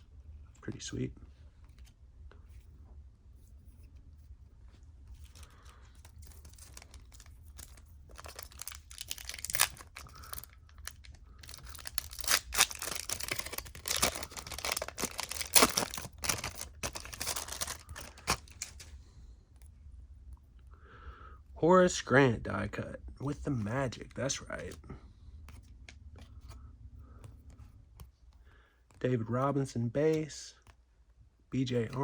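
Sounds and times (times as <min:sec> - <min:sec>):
card pack wrapper tearing and crinkling: 0:05.2 - 0:18.9.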